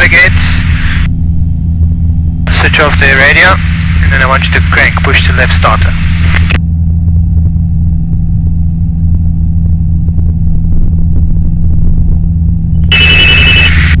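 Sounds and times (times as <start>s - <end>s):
aircraft engine and propeller drone: 0.0s - 14.0s.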